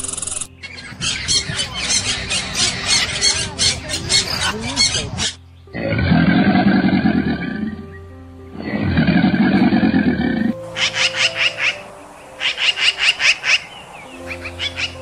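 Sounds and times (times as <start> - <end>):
birds twittering: 0.0 - 15.0
alligator bellowing: 0.6 - 11.8.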